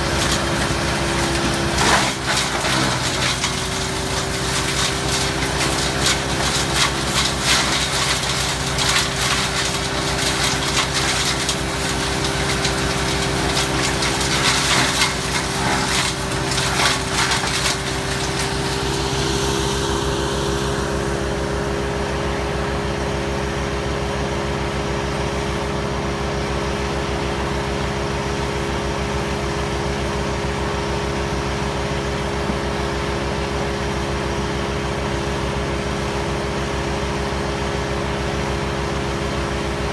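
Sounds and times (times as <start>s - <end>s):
cutters crunching wood: 0.0s - 20.1s
wood chipper engine running: 0.0s - 39.9s.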